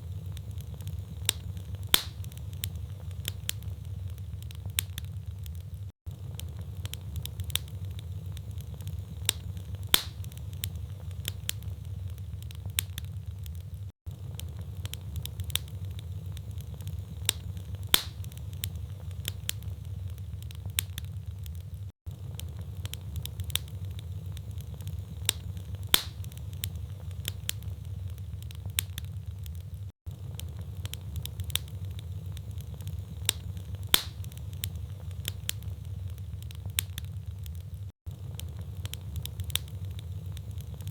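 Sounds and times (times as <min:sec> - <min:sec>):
logs crackling and popping: 0:00.0 - 0:40.9
low rumble of flames: 0:00.0 - 0:40.9.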